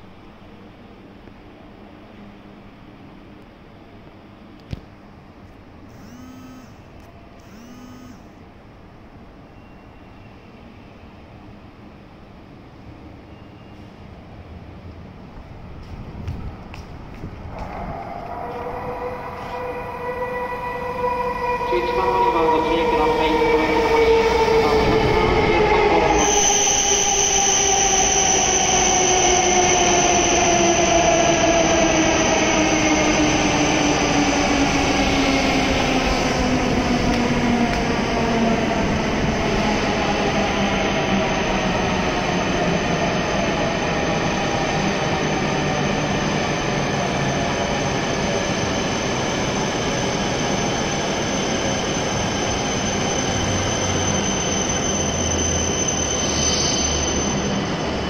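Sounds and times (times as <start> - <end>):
traction motor whine: 5.9 - 8.3
steady high-pitched tone: 5.9 - 8.4
train rushing past: 13.0 - 58.0.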